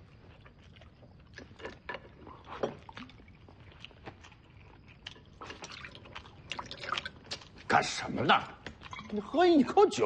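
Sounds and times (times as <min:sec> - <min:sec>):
chewing: 0:00.0 - 0:07.7, 0:08.6 - 0:09.4.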